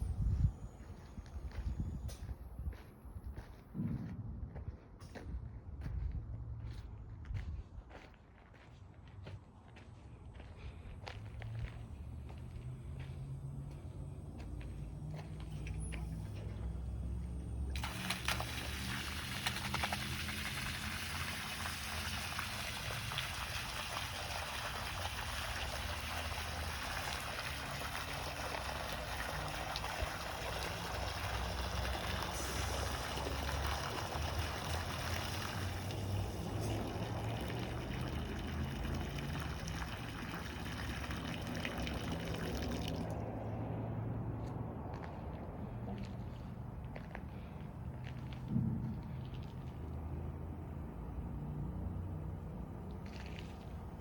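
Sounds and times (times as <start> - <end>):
truck engine running: 10.8 - 54.0
water gushing from boom: 15.8 - 43.3, 46.6 - 54.0.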